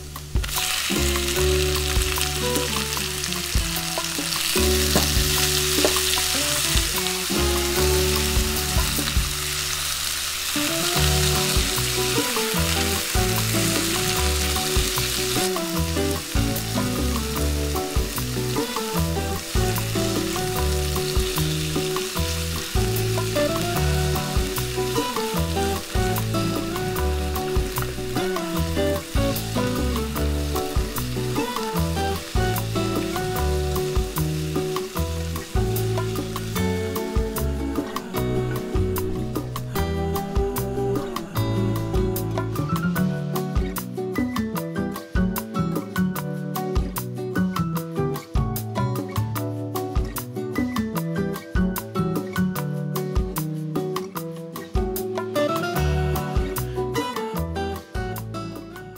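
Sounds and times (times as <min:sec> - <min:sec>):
vegetables sizzling in a frying pan: 0:00.0 - 0:43.1
background music: 0:00.0 - 0:58.9.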